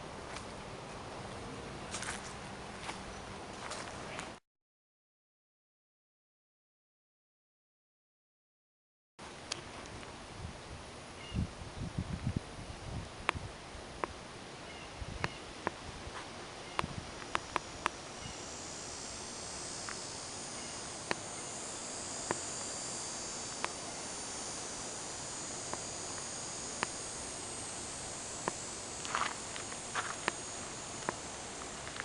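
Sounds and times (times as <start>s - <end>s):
insects trilling: 16.4s - 32.0s
sharp clicks: 16.8s - 32.0s.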